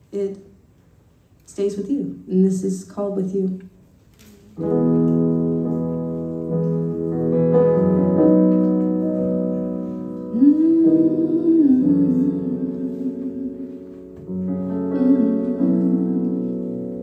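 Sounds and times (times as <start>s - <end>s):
piano playing slow chords: 4.6s - 17.0s.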